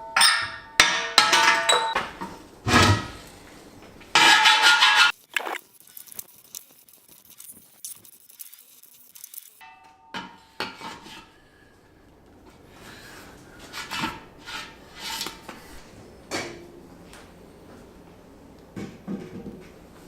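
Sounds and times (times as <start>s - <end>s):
knocks and scraping of objects: 4.1s - 5.6s.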